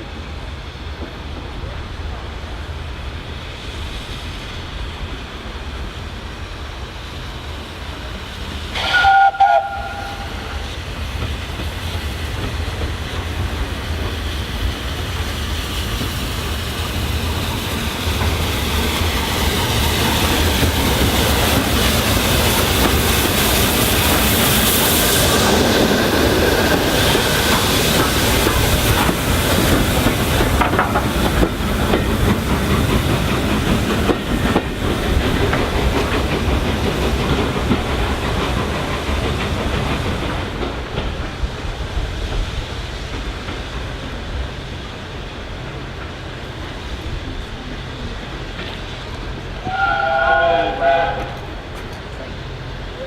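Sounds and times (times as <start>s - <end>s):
steam train running past: 0.0s - 53.0s
steam locomotive whistle: 8.7s - 10.7s, 49.6s - 51.5s.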